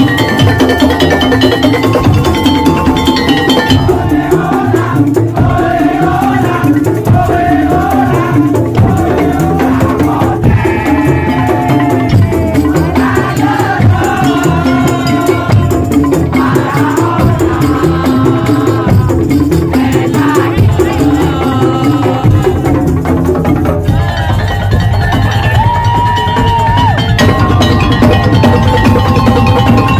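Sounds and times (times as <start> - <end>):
wavering melody line: 0.0 - 6.9
drums and wooden percussion: 0.0 - 29.9.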